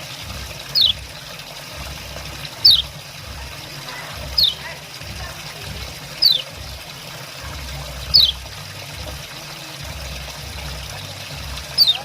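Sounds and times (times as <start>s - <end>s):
running water trickling: 0.0s - 12.0s
bird chirping call: 0.7s - 1.0s, 2.6s - 2.9s, 4.2s - 4.7s, 6.1s - 6.5s, 8.1s - 8.4s, 11.7s - 12.0s.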